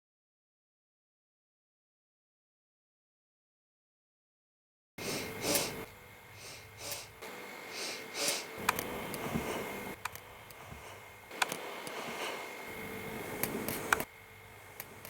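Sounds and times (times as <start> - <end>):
cabin air system hum: 5.0 - 15.0.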